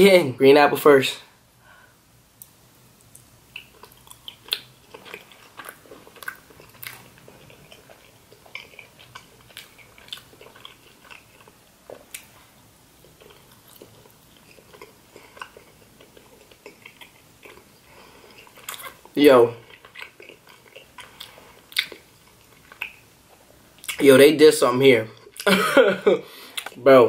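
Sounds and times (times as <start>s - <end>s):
person chewing with mouth clicks: 3.0s - 24.0s, 26.5s - 26.8s.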